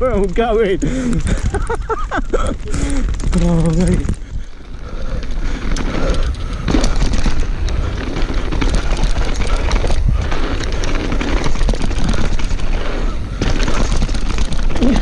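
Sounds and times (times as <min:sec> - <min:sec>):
bike rattling over bumps: 0:00.0 - 0:15.0
wind buffeting microphone: 0:00.0 - 0:15.0.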